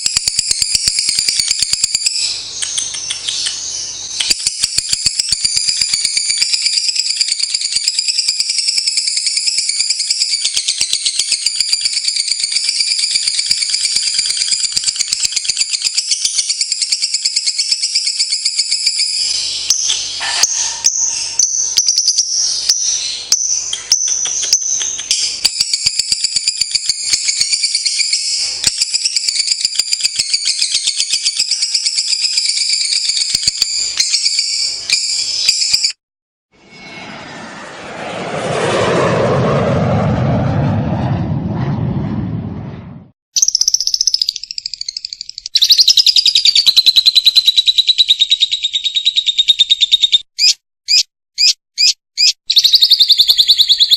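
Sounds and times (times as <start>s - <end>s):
bird chattering trills: 0.6s - 8.3s, 15.3s - 25.1s, 43.4s - 53.9s.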